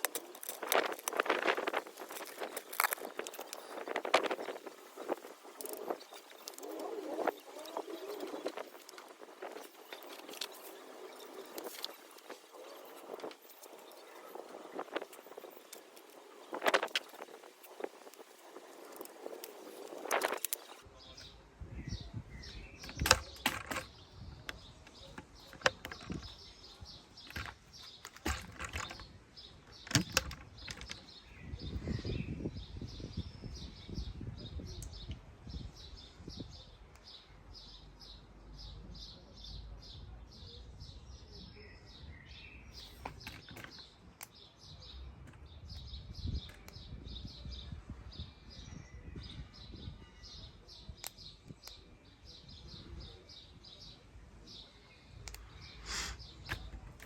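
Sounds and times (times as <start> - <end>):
small bird chirping: 0.0 - 57.0
sharp clicks and knocks: 22.8 - 26.4, 27.2 - 31.2.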